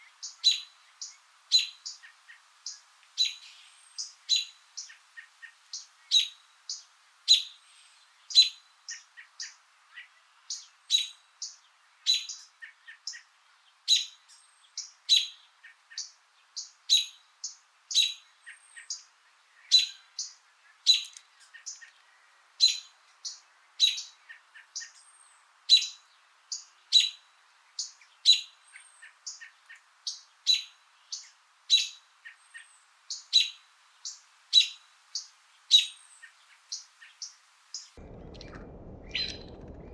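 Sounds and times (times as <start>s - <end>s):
small bird chirping: 0.2s - 39.6s.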